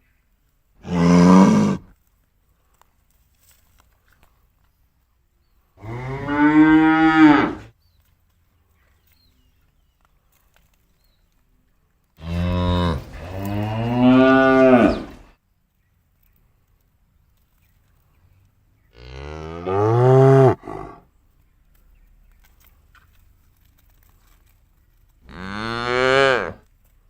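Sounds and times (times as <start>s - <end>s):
cattle mooing: 0.8s - 1.9s, 5.8s - 7.7s, 12.2s - 15.2s, 19.1s - 21.0s.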